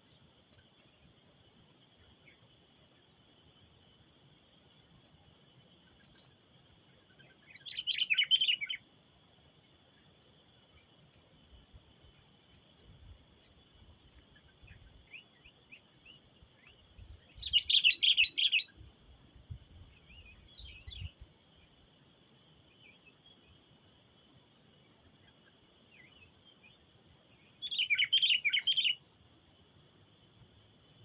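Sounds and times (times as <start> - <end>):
birds chattering chirps: 7.3 - 8.8, 14.4 - 18.8, 27.4 - 29.0.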